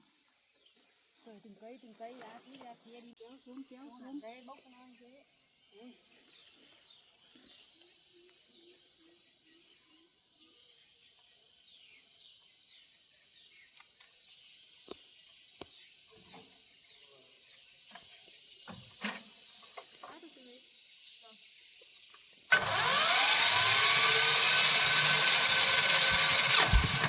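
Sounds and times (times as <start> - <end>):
high-pitched insect buzz: 2.1 - 27.0.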